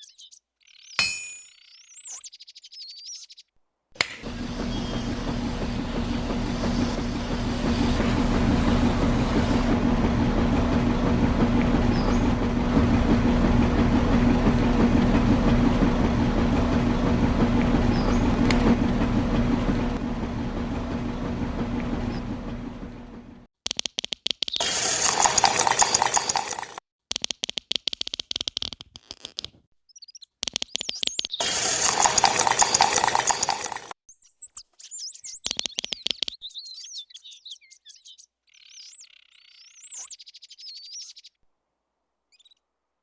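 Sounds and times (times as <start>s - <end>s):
bird chirps: 0.0s - 3.6s, 34.2s - 41.4s, 42.3s - 42.6s
motor humming and rattling: 4.0s - 23.5s, 24.6s - 26.8s, 31.4s - 34.0s.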